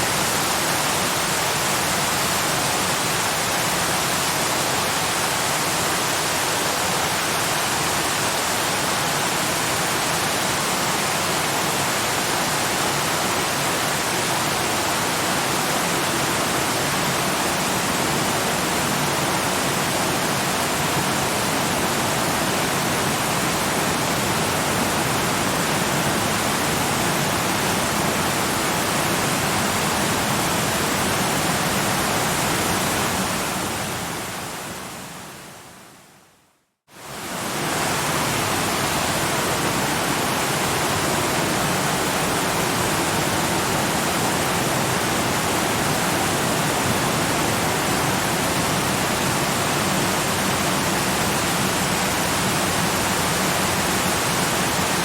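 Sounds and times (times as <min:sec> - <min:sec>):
waterfall rushing: 0:00.0 - 0:35.4, 0:37.0 - 0:55.0.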